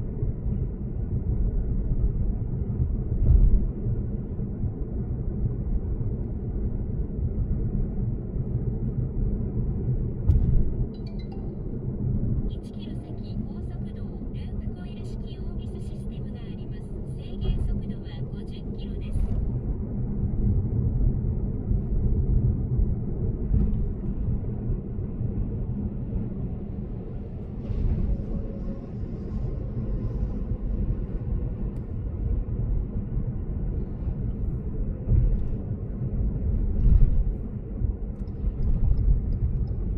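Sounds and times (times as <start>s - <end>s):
road and tyre rumble: 0.0s - 39.9s
sharp thump: 10.2s - 10.7s.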